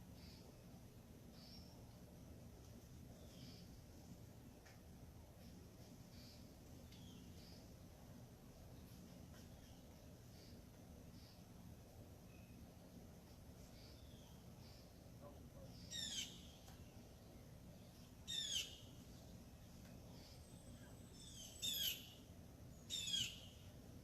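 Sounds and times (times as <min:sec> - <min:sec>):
bird calling: 0:13.6 - 0:16.9, 0:18.0 - 0:19.2, 0:20.0 - 0:23.7.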